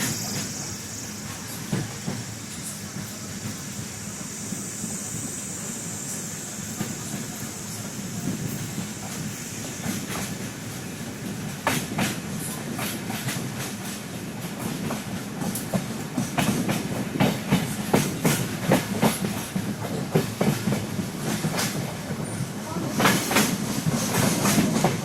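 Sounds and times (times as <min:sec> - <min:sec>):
train wheels clattering over rail joints: 0:00.0 - 0:05.4, 0:06.6 - 0:25.0
train low rumble: 0:00.0 - 0:25.0.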